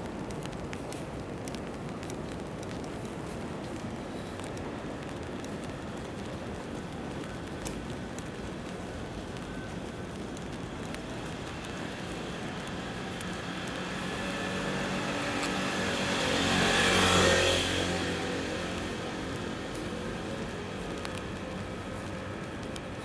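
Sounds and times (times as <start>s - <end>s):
car passing on wet road: 11.2s - 23.0s.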